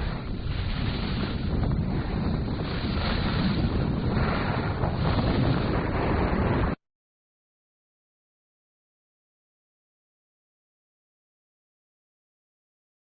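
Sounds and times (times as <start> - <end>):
surf: 0.0 - 6.8
wind on microphone: 0.0 - 6.8.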